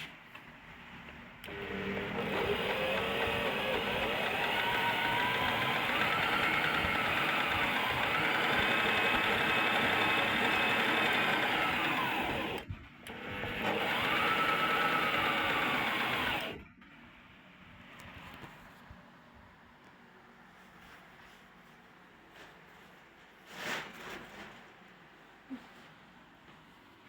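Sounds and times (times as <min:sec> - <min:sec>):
sewing machine running: 0:01.4 - 0:16.6.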